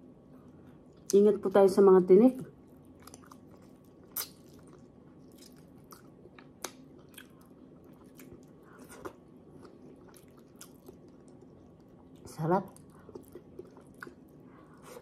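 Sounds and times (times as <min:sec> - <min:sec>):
chewing and wet mouth clicks: 0:02.6 - 0:14.4
sharp mouth smacks: 0:04.2 - 0:04.4.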